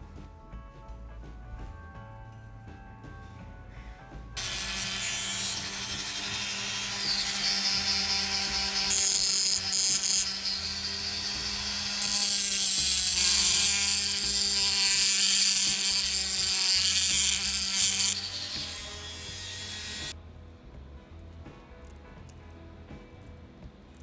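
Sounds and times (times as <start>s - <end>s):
power tool grinding: 4.4s - 20.2s.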